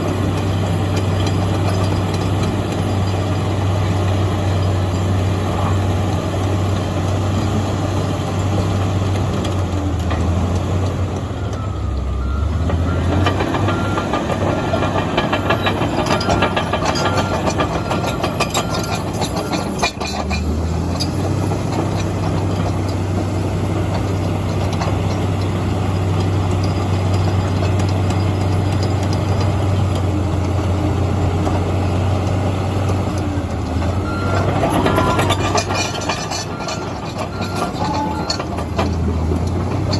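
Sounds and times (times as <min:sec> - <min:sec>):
bulldozer diesel engine running: 0:00.0 - 0:39.9
steel tracks clanking: 0:12.8 - 0:25.4, 0:33.2 - 0:39.9.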